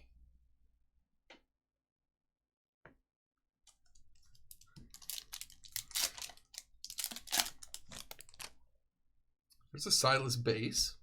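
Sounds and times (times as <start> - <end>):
card wrappers crinkling: 4.2 - 8.6.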